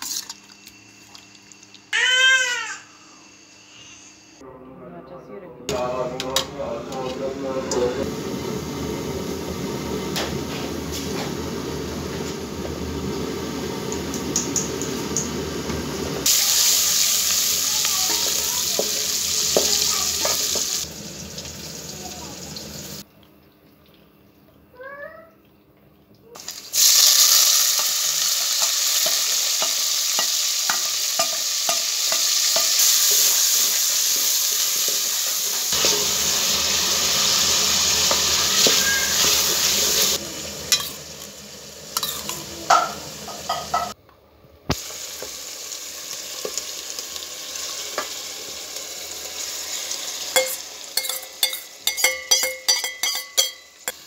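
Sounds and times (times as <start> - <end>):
food sizzling in hot oil: 7.7 - 23.1, 26.4 - 44.0, 44.7 - 54.0
spoon knocking against pot: 50.4 - 54.0.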